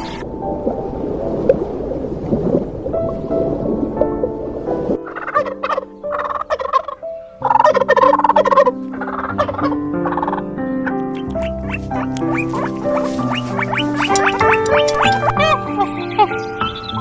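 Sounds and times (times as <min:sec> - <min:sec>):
background music: 0:00.0 - 0:17.0
turkey gobbling: 0:05.1 - 0:15.7.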